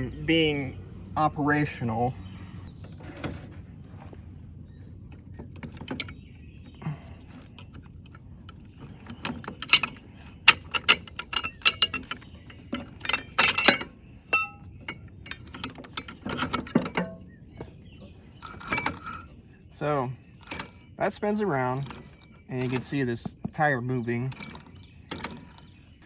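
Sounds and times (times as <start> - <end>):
metal parts clicking and clinking: 7.3 - 17.3, 18.4 - 19.3
metallic ring: 13.1 - 15.0.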